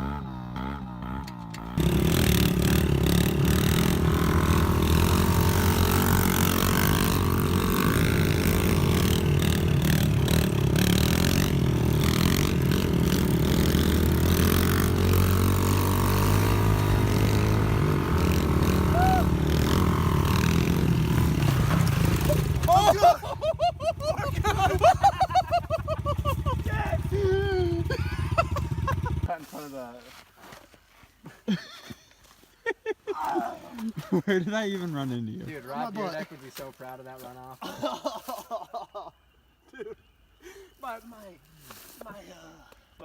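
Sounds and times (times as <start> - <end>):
pit bike engine running: 0.0 - 29.3.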